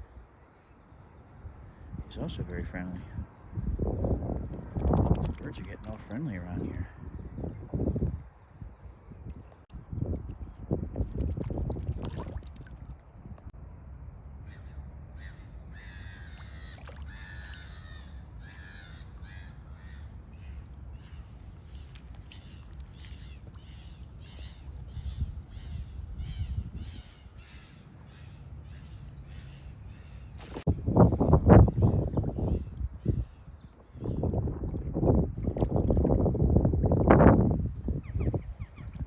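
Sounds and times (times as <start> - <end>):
low rumble of wind: 0.0 - 39.0
bird cawing: 14.5 - 30.2.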